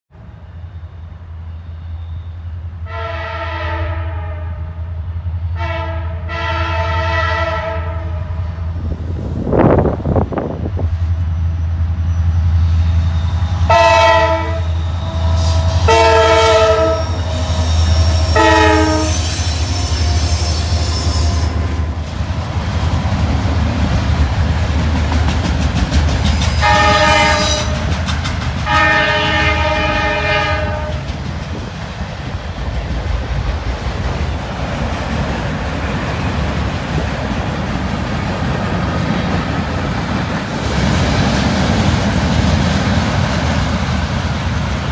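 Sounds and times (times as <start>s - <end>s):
train rumbling past: 0.1s - 44.9s
locomotive air horn blasts: 2.8s - 4.8s, 5.5s - 8.6s, 13.5s - 21.9s, 26.6s - 27.9s, 28.7s - 31.0s
wheels clacking over rail joints: 21.9s - 44.9s.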